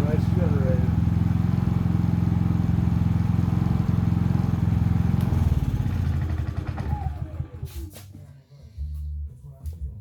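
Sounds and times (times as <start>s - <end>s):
generator engine running: 0.0s - 7.8s.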